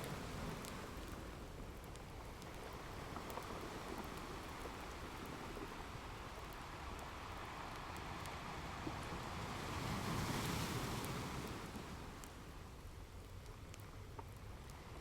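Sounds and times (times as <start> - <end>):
wood fire crackling: 0.0 - 8.4
ocean surf: 6.7 - 12.3.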